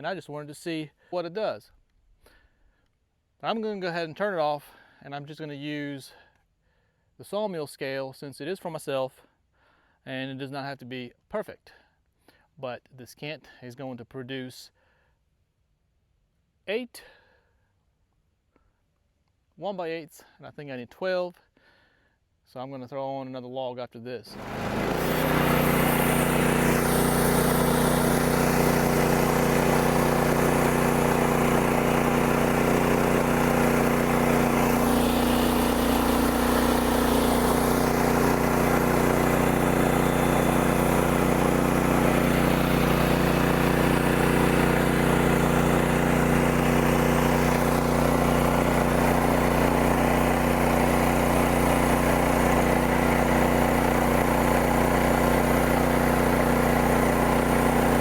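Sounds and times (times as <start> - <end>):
band saw blade cutting wood: 24.3 - 58.0
gasoline engine droning: 24.3 - 58.0.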